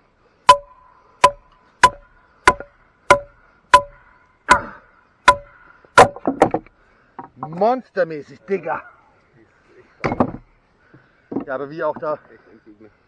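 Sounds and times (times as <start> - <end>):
wooden club striking knife spine: 0.5 - 4.7.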